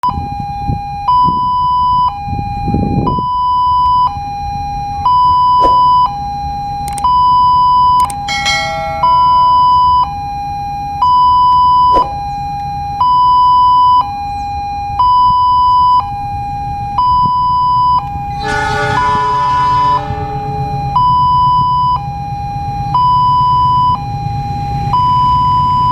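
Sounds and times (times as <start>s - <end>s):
level crossing two-tone alarm: 8.0s - 10.0s, 18.3s - 21.6s
horn blast with overtones: 8.1s - 9.9s, 18.0s - 22.2s.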